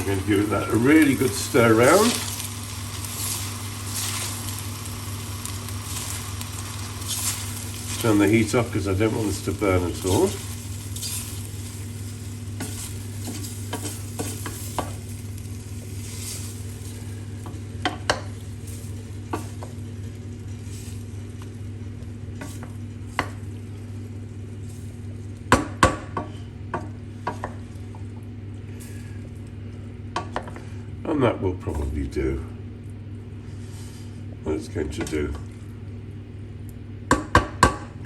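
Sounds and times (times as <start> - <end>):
light sizzle: 0.0 - 37.2
steady low hum: 0.0 - 38.0
spoon scraping and knocking a pan: 12.6 - 15.0.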